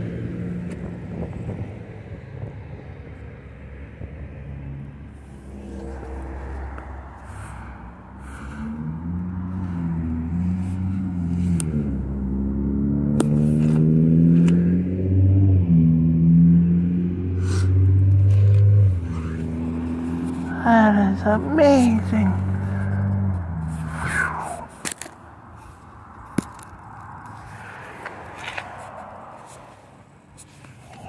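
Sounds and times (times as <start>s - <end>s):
vehicle engine running: 4.8s - 24.8s.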